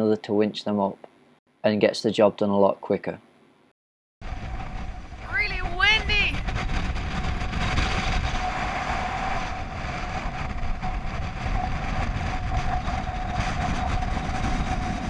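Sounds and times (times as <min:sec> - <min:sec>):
strong wind buffeting microphone: 0:04.2 - 0:15.0.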